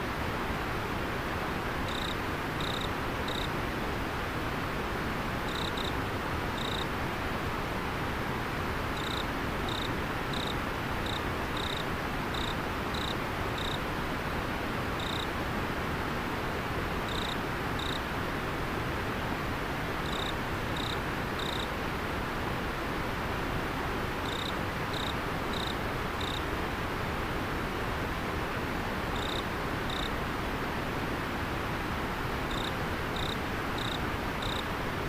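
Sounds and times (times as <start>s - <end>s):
insect chirping: 1.9s - 3.5s, 5.5s - 6.0s, 6.6s - 6.9s, 9.0s - 13.8s, 15.0s - 15.3s, 17.1s - 18.0s, 20.0s - 21.7s, 24.2s - 26.4s, 29.2s - 30.1s, 32.5s - 34.7s.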